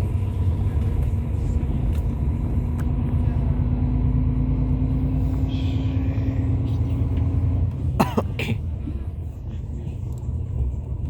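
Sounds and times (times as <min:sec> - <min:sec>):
bus diesel engine drone: 0:00.0 - 0:11.0
road rumble: 0:00.0 - 0:11.0
person coughing: 0:08.0 - 0:08.7.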